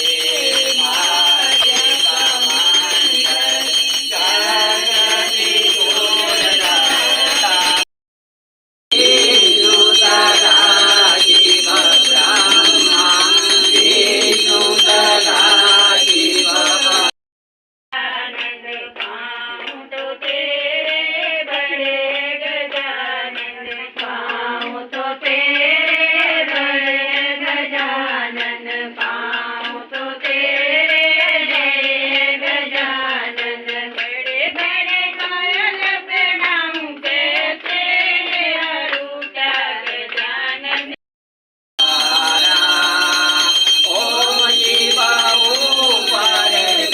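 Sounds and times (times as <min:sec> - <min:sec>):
rhythmic beat: 0:00.0 - 0:07.8, 0:08.9 - 0:17.1, 0:41.8 - 0:46.9
high ringing bells: 0:00.0 - 0:07.9, 0:08.9 - 0:17.2, 0:41.8 - 0:46.9
voices singing devotional song: 0:00.0 - 0:07.9, 0:08.9 - 0:17.2, 0:18.0 - 0:41.0, 0:41.8 - 0:46.9.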